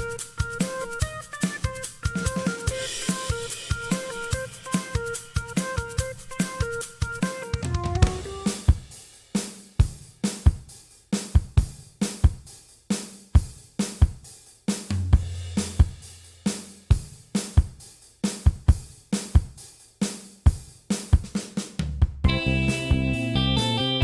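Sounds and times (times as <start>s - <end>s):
drum kit beat: 0.0s - 24.0s
held bass note: 7.7s - 8.6s, 22.3s - 24.0s.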